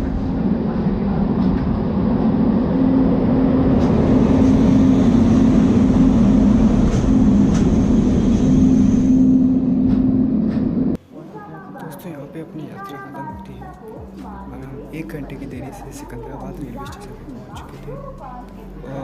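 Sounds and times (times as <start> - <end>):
low hum: 0.0 - 11.0
passenger train running: 0.0 - 11.0.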